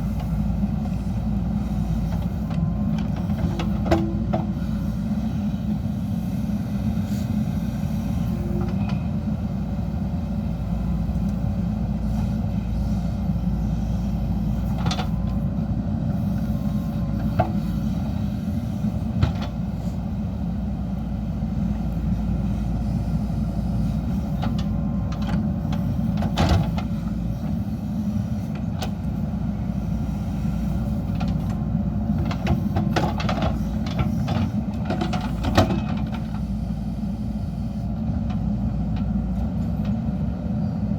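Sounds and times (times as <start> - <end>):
diesel engine under load: 0.0 - 40.9.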